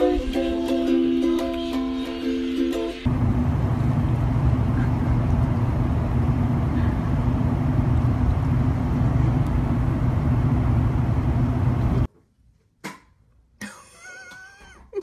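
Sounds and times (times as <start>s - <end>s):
vehicle engine rumble: 3.1s - 12.1s.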